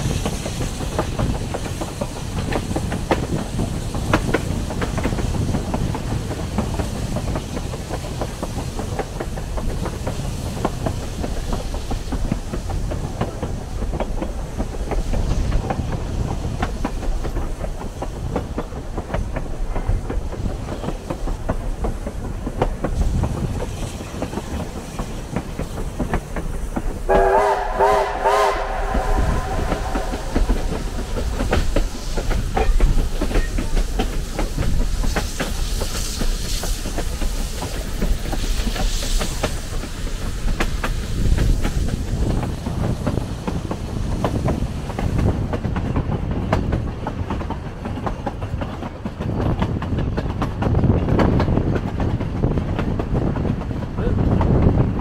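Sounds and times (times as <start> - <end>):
train rolling with rail clicks: 0.0 - 55.0
chime train whistle: 27.1 - 29.9.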